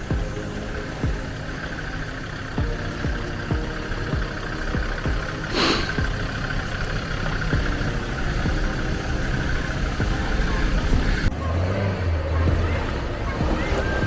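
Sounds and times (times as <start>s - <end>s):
vehicle engine running: 0.0s - 14.0s
brief rushing hiss: 5.4s - 6.0s.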